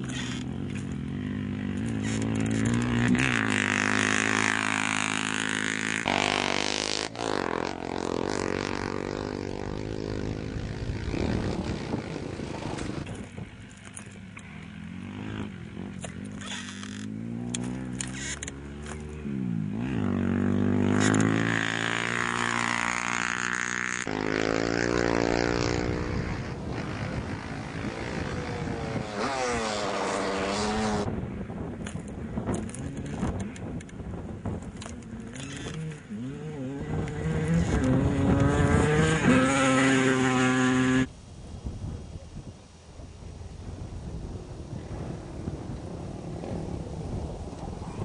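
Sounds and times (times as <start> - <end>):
motorcycle and quad engines revving: 0.0 - 41.1.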